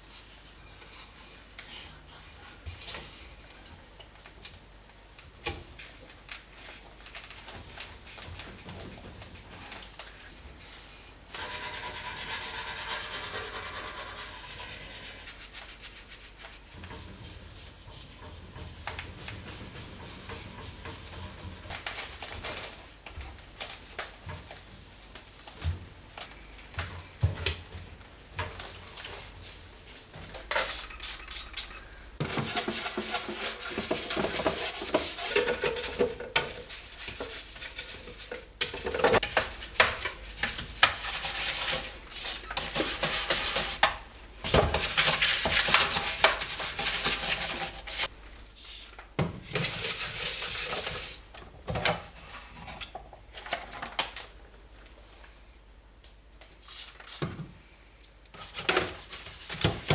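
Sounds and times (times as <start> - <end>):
scrubbing hard surface by hand: 30.6 - 43.8.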